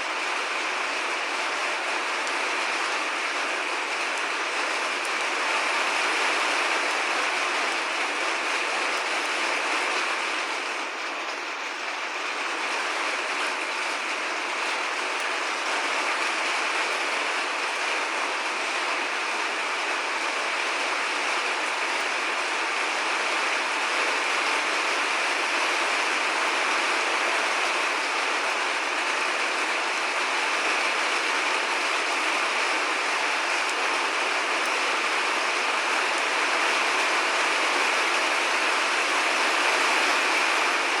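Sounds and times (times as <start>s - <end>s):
heavy rain: 0.0s - 41.0s.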